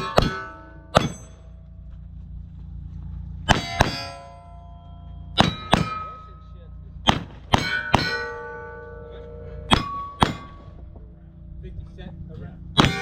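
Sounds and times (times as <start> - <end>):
steel plate ringing: 0.0 - 1.8, 3.4 - 11.6, 12.8 - 13.0
pistol shots: 3.5 - 4.2, 5.4 - 6.2, 7.0 - 8.6, 12.8 - 13.0.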